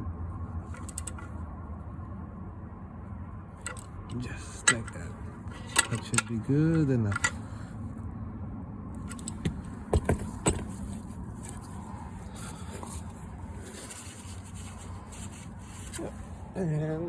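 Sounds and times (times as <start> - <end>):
steady low hum: 0.0 - 17.0
tools clicking and knocking: 0.7 - 1.3, 3.6 - 7.4, 9.0 - 11.0.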